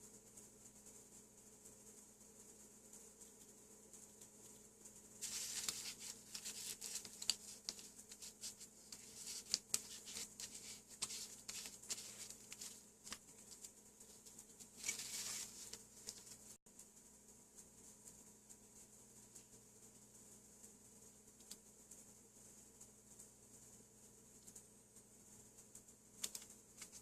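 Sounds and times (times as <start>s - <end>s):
small objects scratching and clicking: 2.9s - 16.6s, 25.6s - 27.0s.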